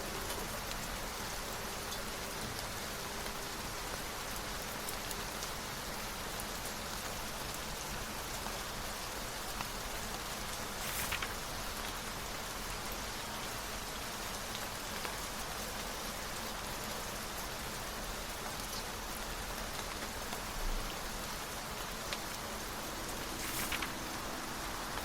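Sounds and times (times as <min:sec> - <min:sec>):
sharp ticks of raindrops: 0:00.0 - 0:25.0
steady rain falling: 0:00.0 - 0:25.0.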